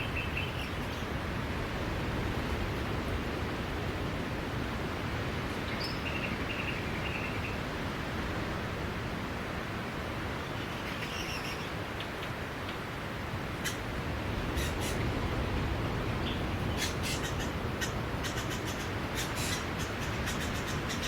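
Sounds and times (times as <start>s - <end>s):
surf washing on beach: 0.0s - 21.0s
faint high bird calls: 16.3s - 21.0s.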